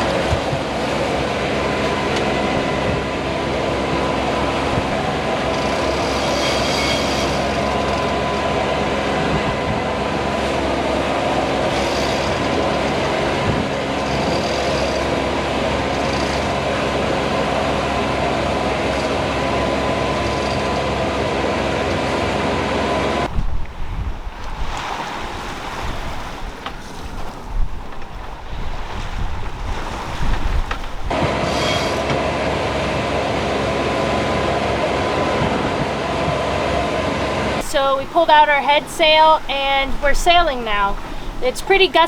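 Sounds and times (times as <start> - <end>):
boat engine running: 0.0 - 42.0
water noise: 0.0 - 42.0
wind noise: 8.5 - 14.6, 22.1 - 31.5.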